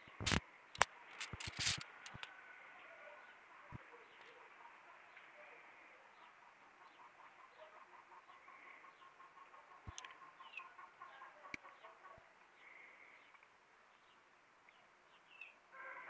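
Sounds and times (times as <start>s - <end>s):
faint distant birds calling: 0.0s - 16.0s
sharp clicks: 0.2s - 2.3s.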